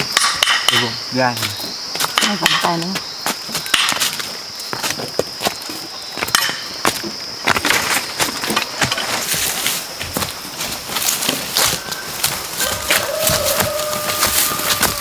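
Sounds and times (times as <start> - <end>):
sharp knocks and crackles: 6.2 - 15.0.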